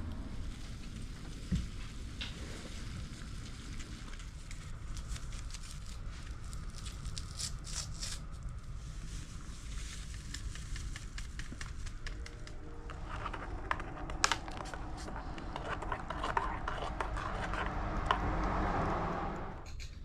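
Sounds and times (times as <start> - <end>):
water crackling near the boil: 0.0 - 7.7
camping stove rumble: 0.0 - 19.7.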